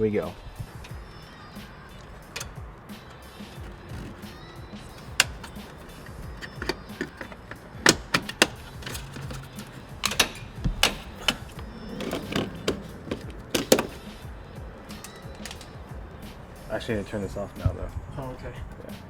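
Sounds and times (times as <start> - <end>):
clicks of small parts handled: 2.0 - 14.1, 15.0 - 15.8.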